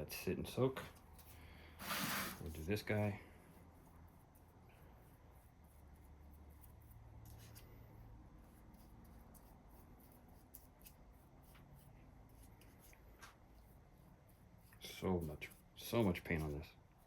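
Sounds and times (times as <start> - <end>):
light clicks and scrapes of metal: 6.4 - 8.0.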